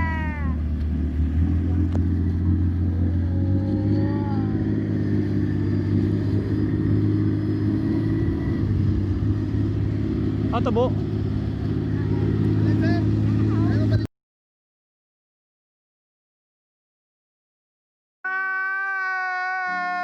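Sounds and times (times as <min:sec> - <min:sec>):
speedboat engine running: 0:00.0 - 0:14.1.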